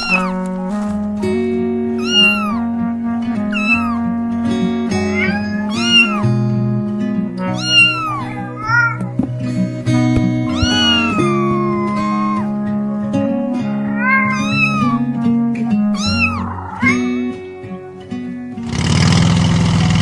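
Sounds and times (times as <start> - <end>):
cartoon cat meowing: 0.0 - 0.4, 2.0 - 2.7, 3.5 - 4.1, 5.0 - 6.3, 7.4 - 9.2, 10.5 - 12.5, 13.8 - 15.1, 16.0 - 17.2
background music of held notes: 0.0 - 18.7.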